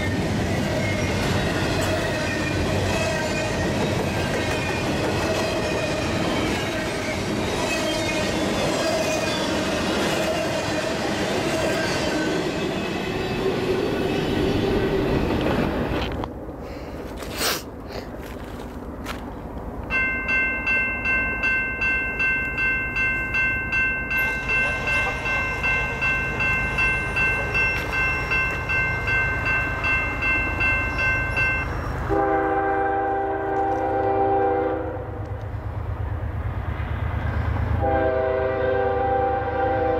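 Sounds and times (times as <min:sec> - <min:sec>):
freight train wheel noise: 0:00.0 - 0:39.9
crossing bell ringing: 0:19.9 - 0:32.9
locomotive air horn: 0:32.1 - 0:35.2, 0:37.8 - 0:39.9.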